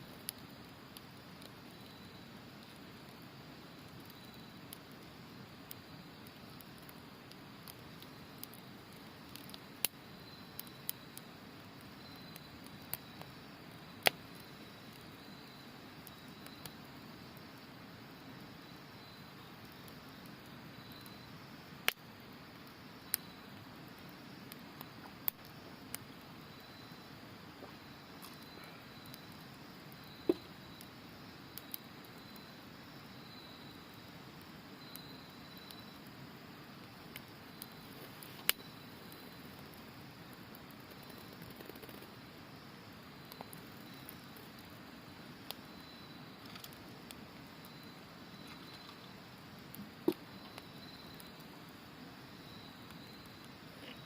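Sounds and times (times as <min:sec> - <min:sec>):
campfire crackling and popping: 0:00.0 - 0:54.0
insects trilling: 0:00.0 - 0:54.0.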